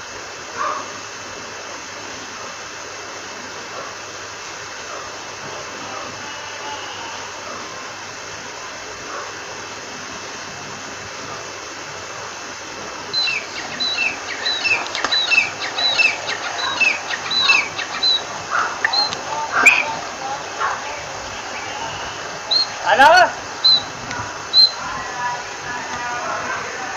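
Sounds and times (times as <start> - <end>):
background hiss: 0.0 - 26.9
partridge calling: 13.1 - 25.0.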